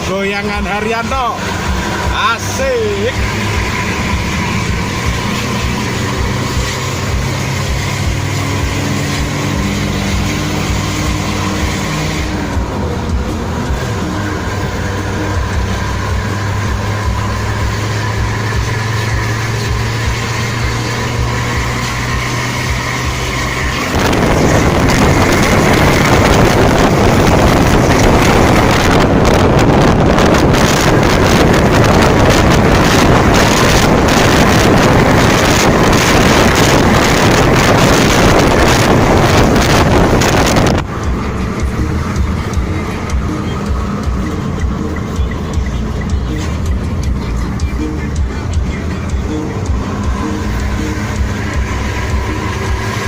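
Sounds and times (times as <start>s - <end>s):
road noise: 0.0s - 53.0s
vehicle engine humming: 0.0s - 53.0s
wind buffeting microphone: 23.5s - 44.2s.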